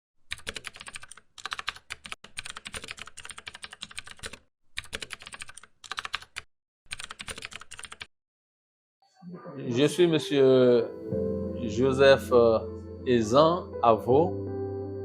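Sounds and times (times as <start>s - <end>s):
rapid keyboard typing: 0.2s - 8.1s.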